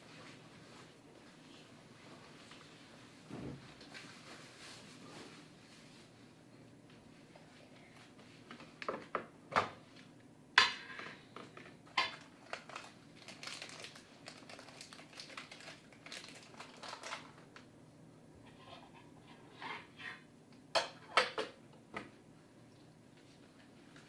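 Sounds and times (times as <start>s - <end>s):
objects clattering and rustling: 10.6s - 17.7s.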